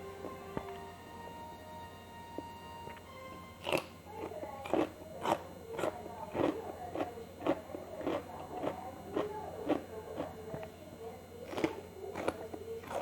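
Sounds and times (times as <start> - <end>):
chewing with wet mouth sounds: 3.6 - 10.8, 11.4 - 13.0.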